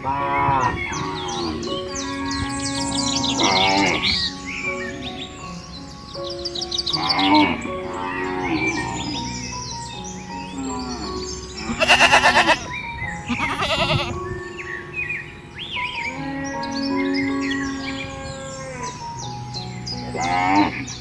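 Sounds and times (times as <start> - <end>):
farm animal calls: 0.0 - 5.4, 10.5 - 14.2, 16.1 - 19.0
background music: 0.0 - 21.0
loud wavering bleat: 10.6 - 12.7, 13.3 - 14.2, 20.1 - 20.9.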